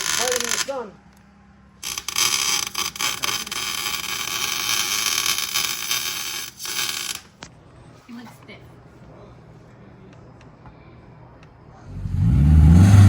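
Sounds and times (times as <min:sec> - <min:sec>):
arc welding crackling hiss: 0:00.0 - 0:00.8, 0:01.8 - 0:07.4.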